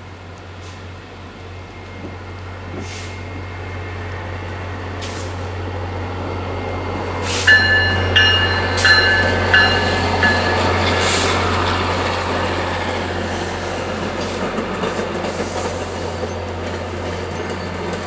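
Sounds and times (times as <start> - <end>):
train rumble: 0.0 - 18.0
bell ringing: 7.5 - 10.8.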